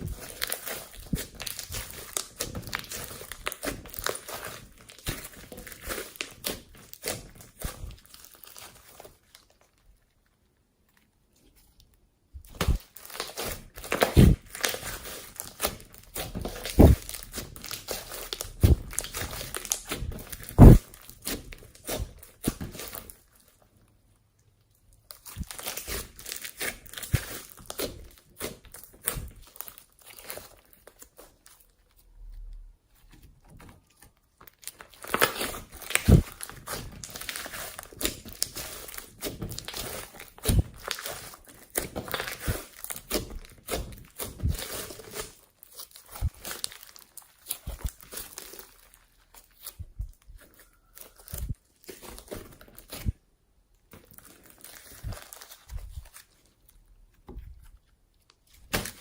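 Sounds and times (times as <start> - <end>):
dull thumps: 12.4 - 12.8, 15.7 - 17.8, 18.5 - 20.8.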